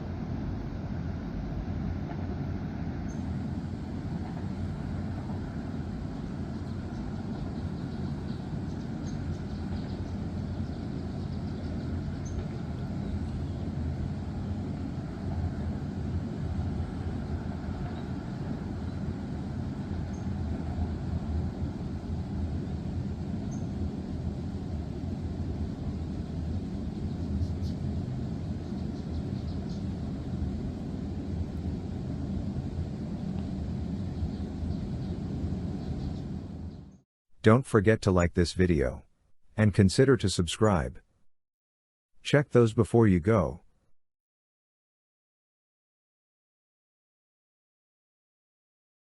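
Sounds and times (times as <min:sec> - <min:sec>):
freight train rumbling past: 0:00.0 - 0:37.0.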